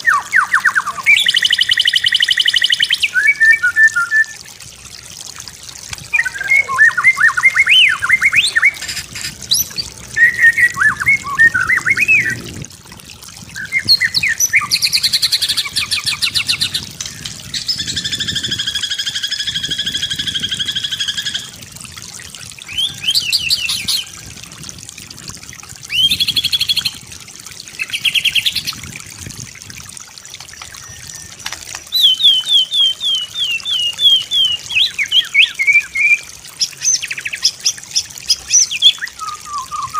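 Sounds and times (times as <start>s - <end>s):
bird singing whistles and trills: 0.0s - 4.4s, 6.1s - 12.4s, 13.6s - 21.6s, 22.7s - 24.1s, 25.9s - 26.9s, 30.6s - 39.9s.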